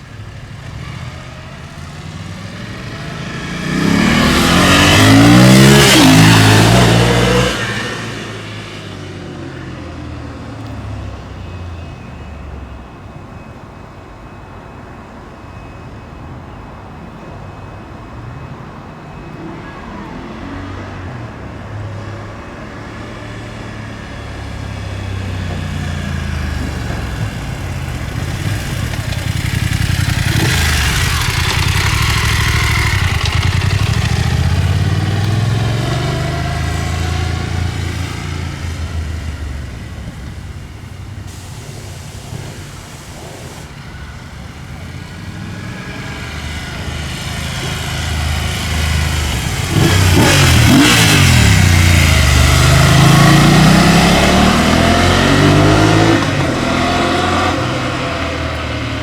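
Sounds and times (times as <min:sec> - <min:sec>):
motorcycle engine running: 0:24.9 - 0:41.2, 0:44.0 - 0:55.3.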